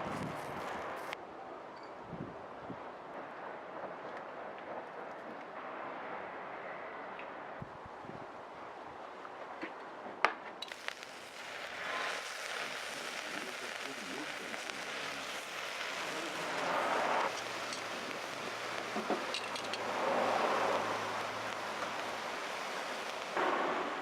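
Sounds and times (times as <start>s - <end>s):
food sizzling on a griddle: 10.6s - 24.0s.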